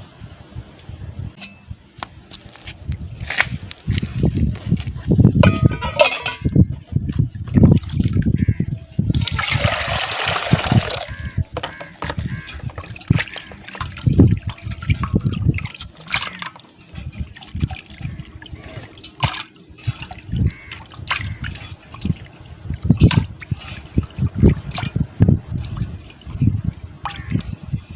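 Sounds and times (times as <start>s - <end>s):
small water splashes: 7.6s - 8.5s, 9.1s - 27.9s
water pouring out: 9.0s - 11.2s, 11.9s - 27.5s.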